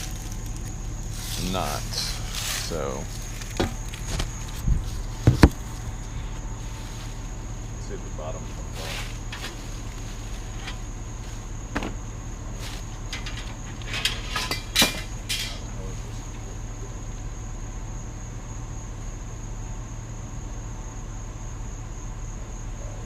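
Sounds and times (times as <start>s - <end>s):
high insect trill: 0.0s - 23.0s
knocks and rattles of furniture: 3.5s - 5.8s, 11.7s - 12.1s.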